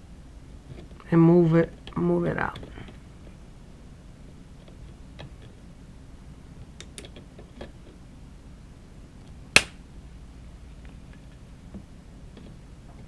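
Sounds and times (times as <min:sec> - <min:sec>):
hose clamp snapping: 0:09.6 - 0:09.8.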